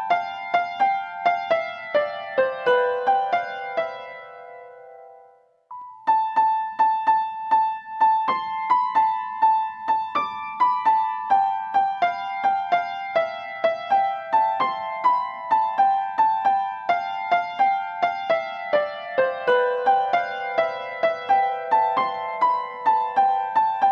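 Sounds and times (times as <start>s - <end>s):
light keyboard tune: 0.0s - 23.9s.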